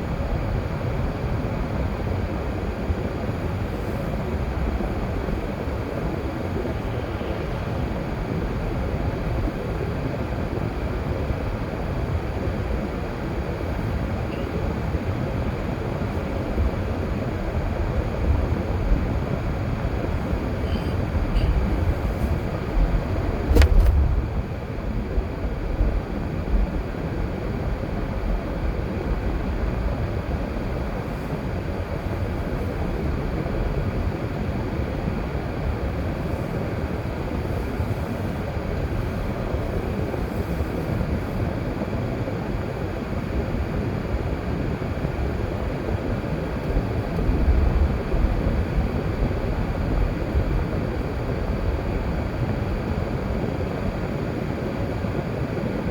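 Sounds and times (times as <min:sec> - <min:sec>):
car engine and tyre rumble: 0:00.4 - 0:42.7
sharp knock: 0:23.5 - 0:24.2.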